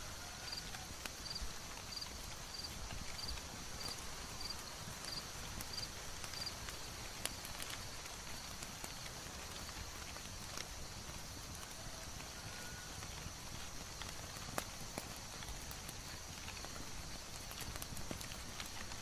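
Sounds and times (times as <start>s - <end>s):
steady hissing background: 0.0s - 19.0s
wood fire crackling: 0.0s - 19.0s.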